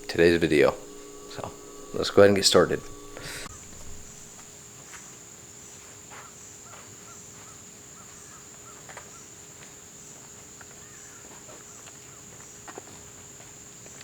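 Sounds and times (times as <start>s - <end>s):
small repeated chirps: 0.0s - 4.3s
insects buzzing: 0.0s - 4.5s.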